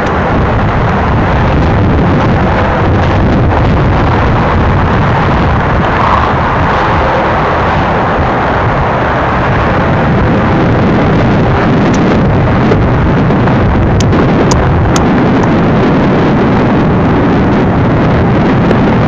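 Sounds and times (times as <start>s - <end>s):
freight train rumbling: 0.0s - 19.0s
wind on microphone: 0.0s - 19.0s.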